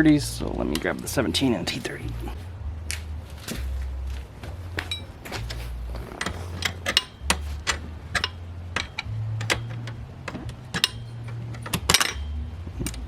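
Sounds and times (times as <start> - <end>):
low steady hum: 0.0 - 13.0
metal tools clinking: 4.8 - 13.0.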